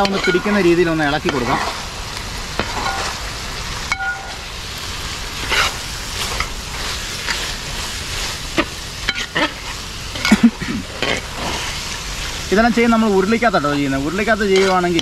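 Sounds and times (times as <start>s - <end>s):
meat sizzling in a pot: 0.0s - 15.0s
utensil scraping a pot: 5.4s - 12.6s, 14.3s - 15.0s.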